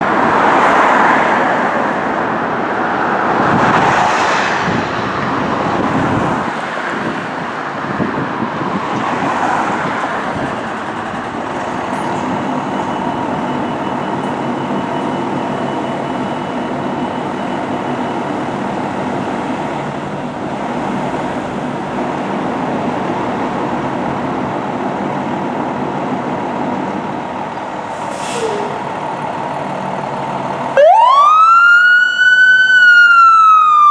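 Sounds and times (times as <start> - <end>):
road and traffic noise: 0.0 - 33.9
fire engine running: 4.6 - 33.9
brief hiss: 27.9 - 28.8.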